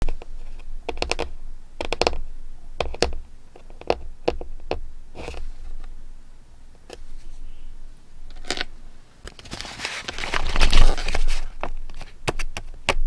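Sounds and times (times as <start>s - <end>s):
stationery clicks and taps: 0.9s - 2.2s
paper rustling: 8.5s - 12.2s.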